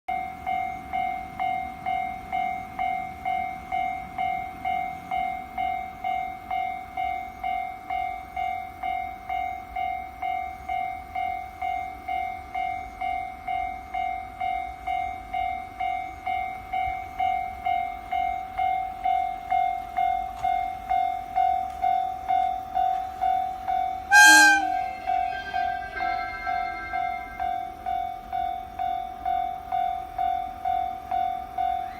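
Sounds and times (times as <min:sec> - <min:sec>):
level crossing alarm pulsing: 0:20.8 - 0:25.2
train horn blast: 0:24.1 - 0:25.0.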